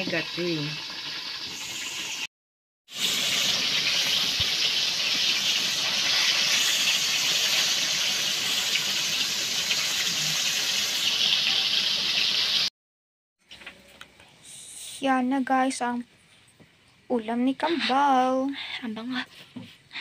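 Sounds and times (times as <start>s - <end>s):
fish sizzling in oil: 0.0s - 2.3s, 2.9s - 12.7s.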